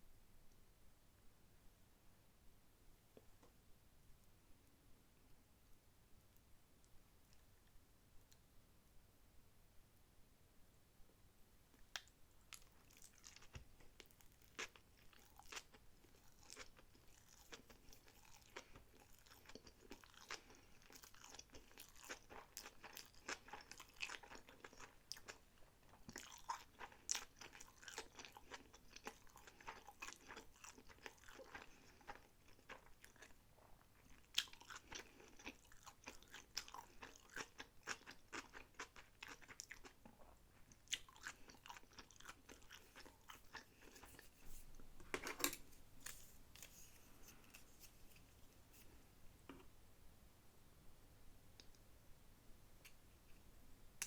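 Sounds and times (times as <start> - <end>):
person chewing crunchy food: 12.0 - 44.5.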